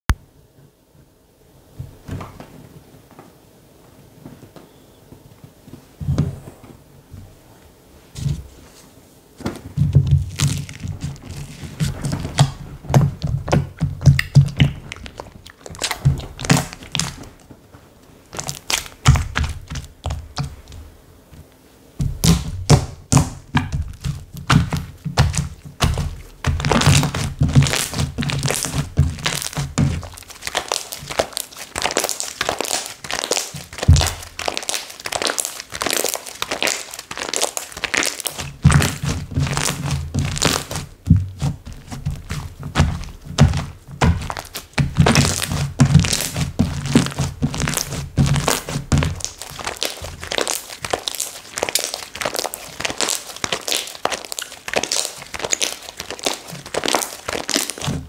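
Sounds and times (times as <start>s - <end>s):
hands squishing slime: 9.7s - 17.5s, 18.3s - 20.9s, 22.0s - 58.0s.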